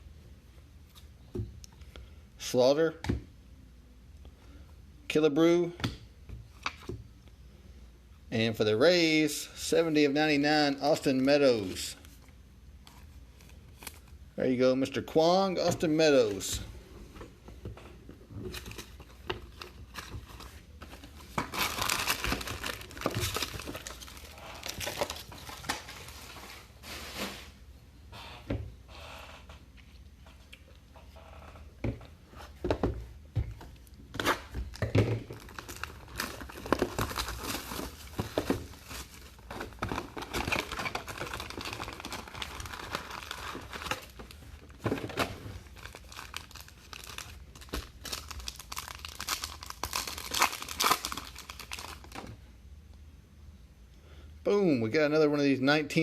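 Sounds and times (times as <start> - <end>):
plastic wrappers tearing and crinkling: 18.5 - 27.5, 34.2 - 52.3.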